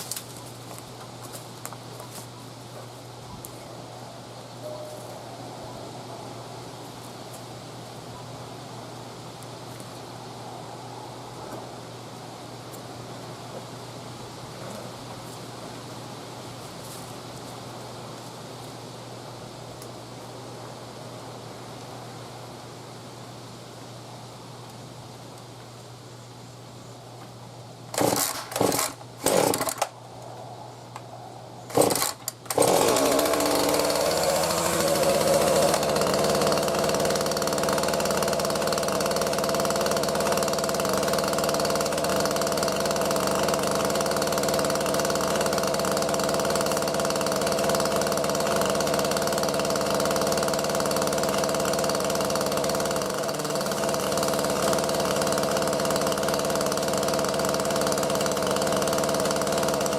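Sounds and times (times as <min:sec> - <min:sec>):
chainsaw engine idling: 0:27.9 - 0:30.0, 0:31.7 - 0:59.9
starter cord rips: 0:27.9 - 0:30.0, 0:31.7 - 0:37.9.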